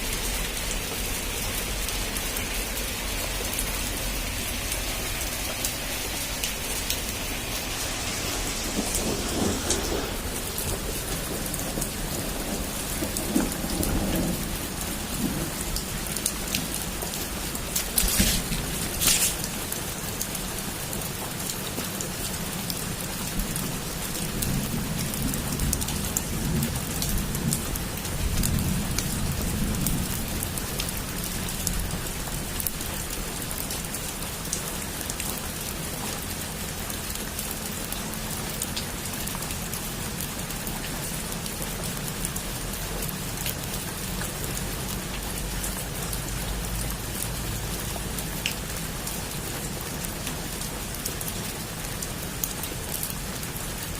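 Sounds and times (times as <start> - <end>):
thunder rumbling: 0.0 - 21.2, 22.9 - 32.8
heavy rain on a roof: 0.0 - 53.9.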